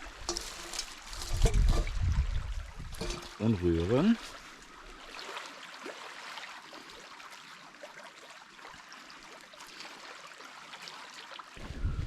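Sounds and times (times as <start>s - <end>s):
stick scraping wet dough: 0.2s - 2.0s.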